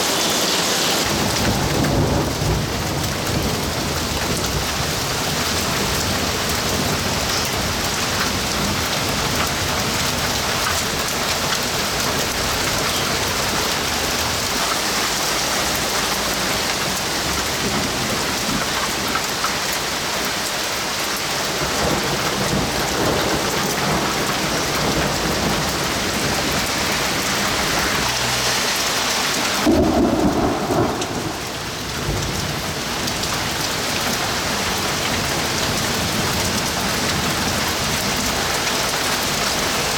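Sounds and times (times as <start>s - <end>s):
heavy rain pouring: 0.0s - 39.9s
thunder rumbling: 1.0s - 19.0s, 21.6s - 28.3s, 29.6s - 38.0s
deep peal of thunder: 29.6s - 32.9s.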